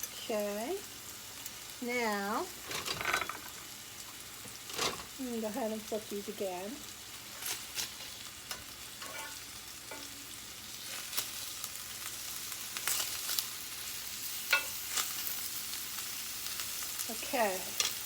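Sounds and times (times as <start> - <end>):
chicken sizzling in hot oil: 0.0 - 18.0
utensil clinking against pan: 2.7 - 3.6, 8.5 - 10.1.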